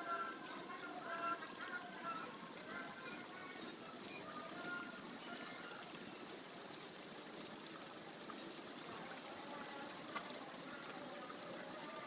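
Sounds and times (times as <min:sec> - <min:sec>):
faint bird chirps: 0:00.0 - 0:07.6
water trickling: 0:00.0 - 0:12.0.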